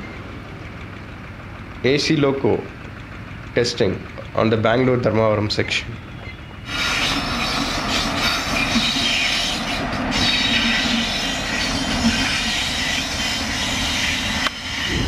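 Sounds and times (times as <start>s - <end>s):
train wheels rumbling on rail: 0.0s - 15.0s
high-pitched wheel squeal: 5.6s - 15.0s.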